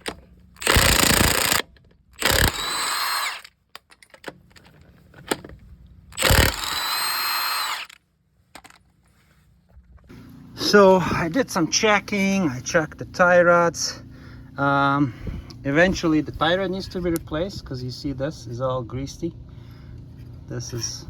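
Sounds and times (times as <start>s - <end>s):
power tool motor whine: 0.6s - 1.6s, 2.2s - 3.5s, 6.2s - 8.0s.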